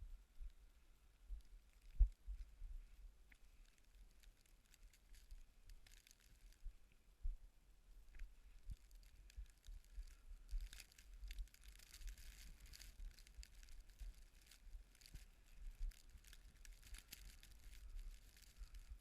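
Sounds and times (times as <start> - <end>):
faint crackling and ticking: 0.0 - 19.0.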